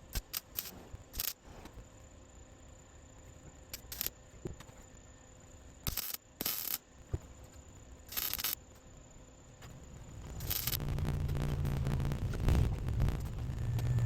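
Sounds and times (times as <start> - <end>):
faint steady background noise: 0.0 - 14.0
tack welding bursts: 8.1 - 8.6, 9.9 - 14.0.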